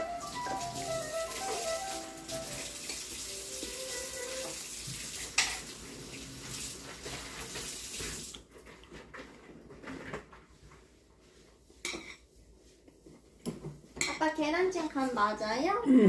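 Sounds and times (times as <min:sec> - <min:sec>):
dishes clinking: 0:05.3 - 0:05.7, 0:11.8 - 0:12.3.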